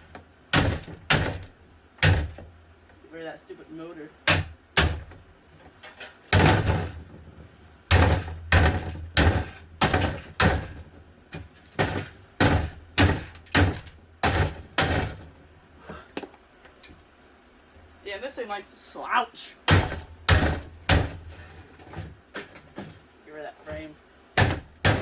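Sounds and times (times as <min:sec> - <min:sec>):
fan being smashed: 0:00.0 - 0:02.5, 0:04.2 - 0:07.3, 0:07.9 - 0:15.4, 0:19.6 - 0:23.0, 0:24.3 - 0:25.0.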